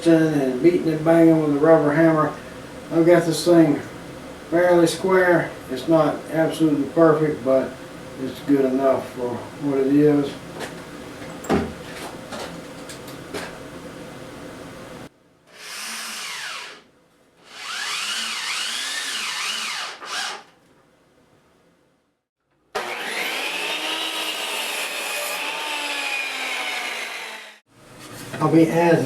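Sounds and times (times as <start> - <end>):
power tool motor running: 15.5 - 16.8, 17.4 - 20.5, 22.8 - 27.6.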